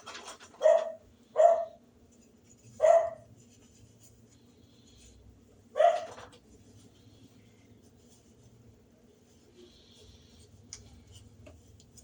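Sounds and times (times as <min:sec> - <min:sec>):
dog barking: 0:00.6 - 0:01.8, 0:02.8 - 0:03.3, 0:05.7 - 0:06.2.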